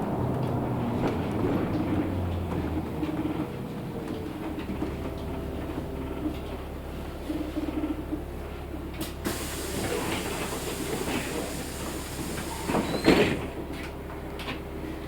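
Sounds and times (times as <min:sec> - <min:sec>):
bus interior hum: 0:00.0 - 0:15.0
pneumatic air hiss: 0:09.3 - 0:13.2.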